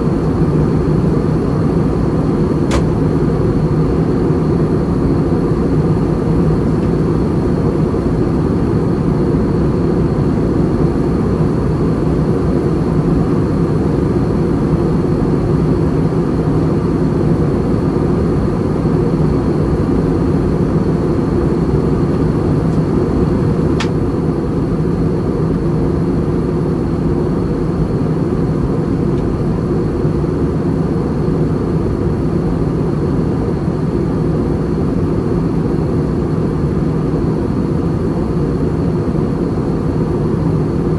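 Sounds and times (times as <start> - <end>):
airplane cabin roar: 0.0 - 40.9
small click: 2.7 - 3.0, 23.8 - 24.0.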